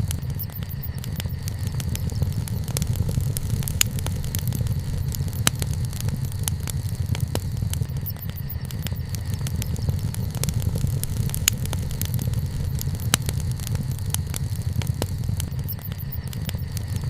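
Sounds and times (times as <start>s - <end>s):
bonfire crackling and popping: 0.0s - 17.0s
steady low rumble: 0.0s - 17.0s.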